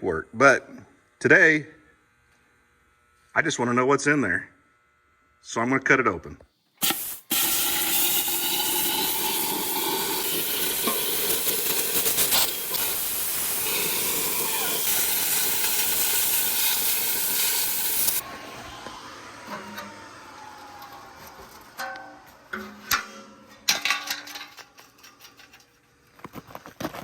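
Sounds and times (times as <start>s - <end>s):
power cutting tool hissing: 6.8s - 21.2s.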